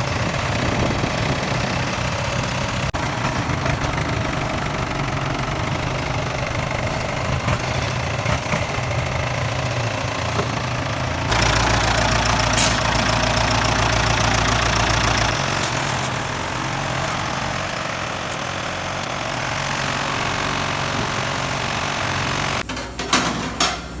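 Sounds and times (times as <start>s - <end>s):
tractor engine running: 0.0s - 24.0s
short clatter: 12.1s - 13.4s.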